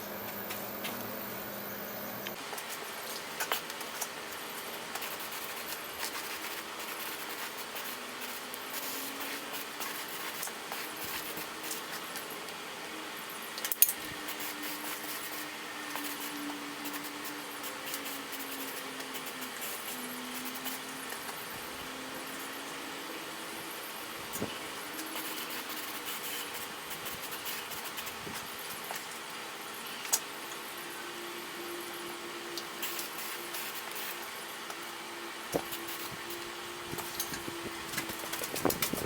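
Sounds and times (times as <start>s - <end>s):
faint wavering hum: 0.0s - 2.4s.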